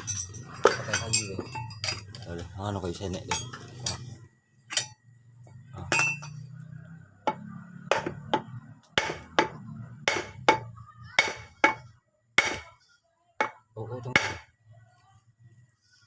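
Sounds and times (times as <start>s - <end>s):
hammer striking metal: 5.9s - 6.4s, 7.3s - 12.8s, 13.4s - 14.5s.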